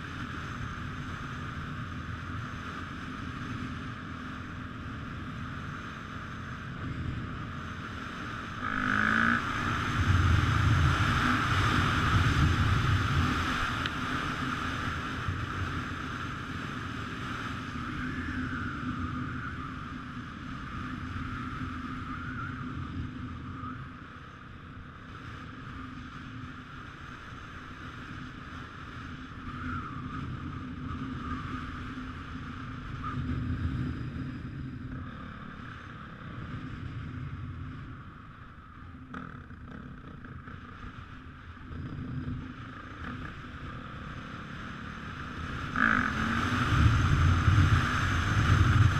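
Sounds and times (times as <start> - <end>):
motocross bike engine running: 0.0 - 19.8, 29.0 - 48.9
wind rushing over microphone: 6.4 - 24.0, 28.8 - 48.9.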